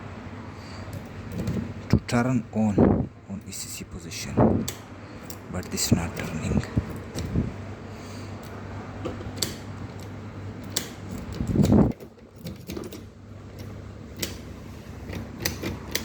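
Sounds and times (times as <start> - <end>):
steady low hum: 0.0 - 16.0
key rattling in ignition lock: 3.4 - 7.6, 9.1 - 14.4, 15.0 - 16.0
key scraping in lock: 4.6 - 7.5, 9.1 - 16.0.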